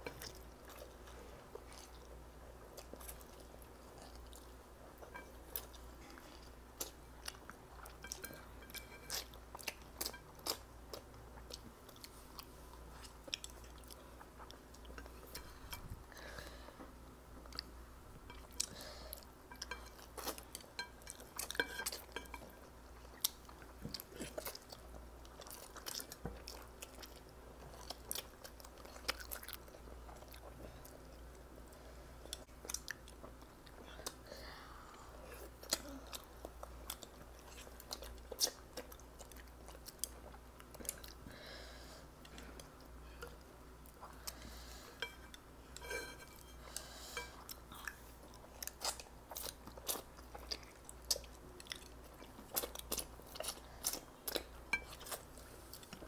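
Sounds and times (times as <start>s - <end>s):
chewing and biting food: 47.4s - 56.0s.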